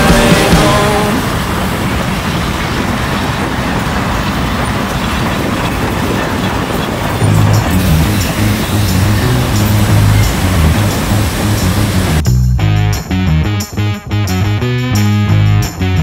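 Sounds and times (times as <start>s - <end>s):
train rushing noise: 0.0s - 12.2s.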